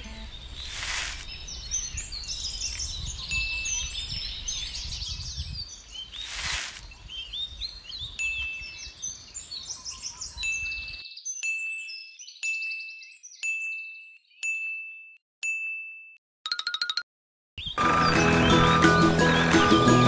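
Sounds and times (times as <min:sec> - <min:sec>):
small birds chirping: 0:00.0 - 0:15.1.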